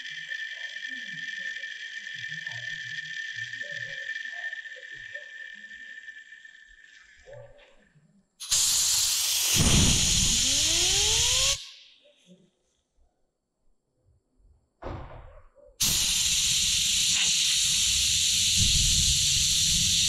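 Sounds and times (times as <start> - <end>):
high ringing tone: 0.0 - 7.3
compressed air hissing: 8.4 - 11.6, 15.8 - 20.0
rising spinning whine: 10.3 - 11.6.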